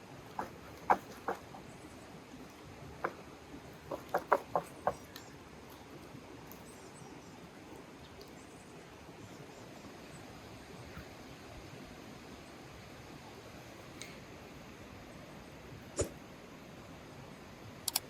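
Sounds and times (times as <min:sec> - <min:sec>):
faint outdoor background hiss: 0:00.0 - 0:18.0.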